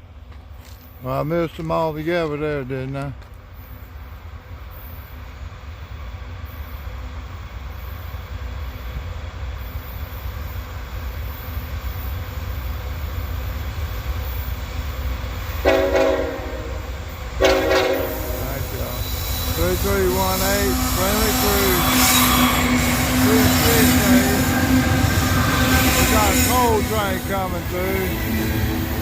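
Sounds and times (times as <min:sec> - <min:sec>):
freight train rumbling: 0:00.0 - 0:29.0
locomotive air horn: 0:15.6 - 0:16.8, 0:17.4 - 0:18.7.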